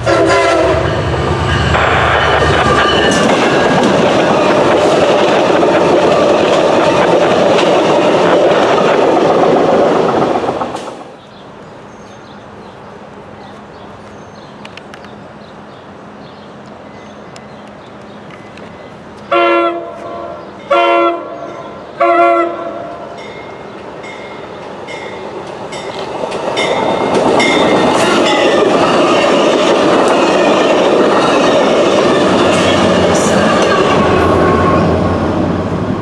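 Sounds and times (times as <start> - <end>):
train horn blast: 0.0 - 2.0, 19.3 - 23.2, 32.5 - 35.1
train wheels rumbling on rails: 0.0 - 22.0, 22.6 - 36.0.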